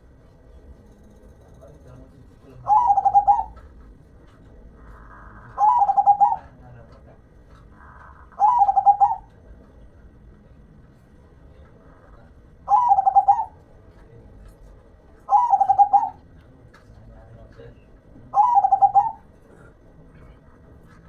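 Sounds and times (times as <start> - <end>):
dove cooing: 2.5 - 7.0, 7.6 - 9.5, 11.9 - 13.6, 15.2 - 16.4, 18.2 - 21.0.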